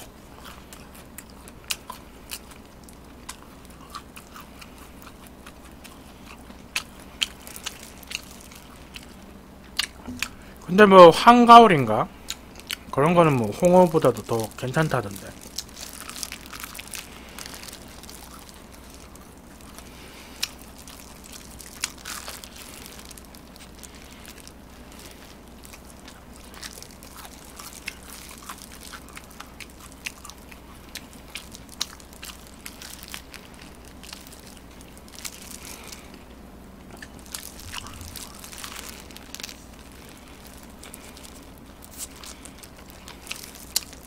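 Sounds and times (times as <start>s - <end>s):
biting and chewing fried chicken: 0.0s - 44.0s
steady low hum: 0.0s - 44.0s
sharp crunches: 37.0s - 44.0s.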